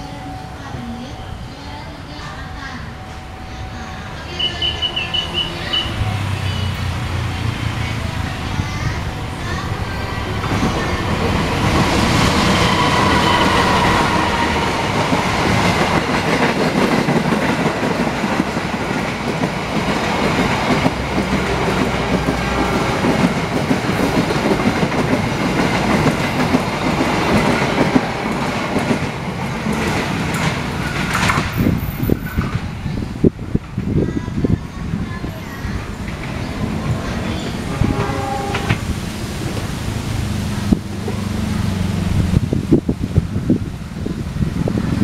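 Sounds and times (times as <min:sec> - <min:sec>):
high wheel squeal: 0:04.3 - 0:07.0, 0:12.2 - 0:15.0.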